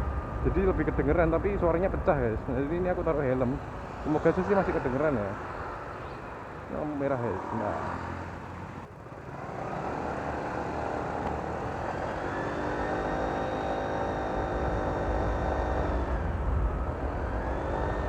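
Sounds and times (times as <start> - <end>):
wind rumble on microphone: 0.0 - 6.7, 11.1 - 18.0
scooter engine pulling away: 2.8 - 18.0
high turbo-like fan whine: 9.4 - 18.0.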